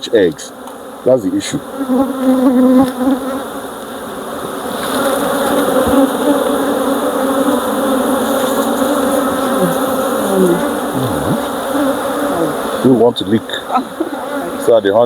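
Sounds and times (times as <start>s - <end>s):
bees buzzing: 0.0s - 15.0s
bees flying past microphone: 0.6s - 14.8s.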